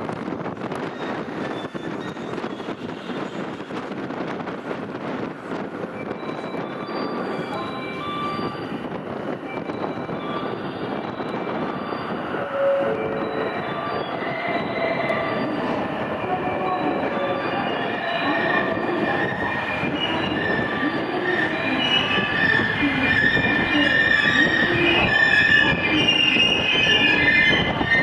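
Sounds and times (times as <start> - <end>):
high steady tones: 6.0 - 27.4
electric train braking: 6.0 - 28.0.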